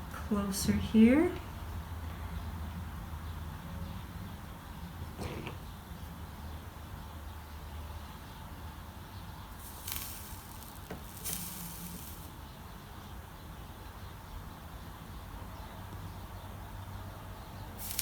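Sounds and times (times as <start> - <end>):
soldering iron sizzling: 9.5 - 12.4, 17.8 - 18.0.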